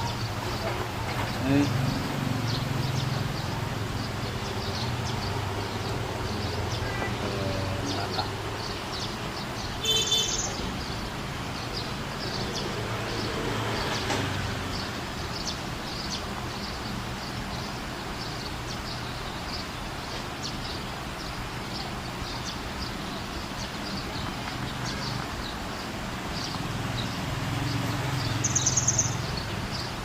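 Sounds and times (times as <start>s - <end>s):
small bird chirping: 14.7s - 29.9s.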